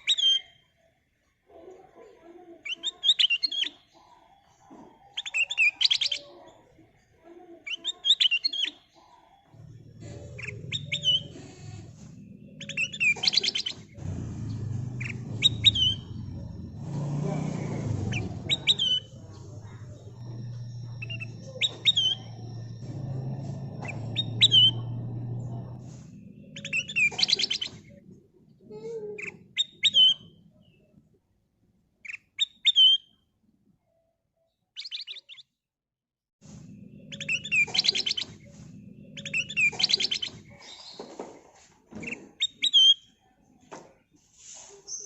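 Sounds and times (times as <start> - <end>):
bulbul singing: 9.5 - 28.2, 36.6 - 41.1
low steady hum: 9.6 - 28.7.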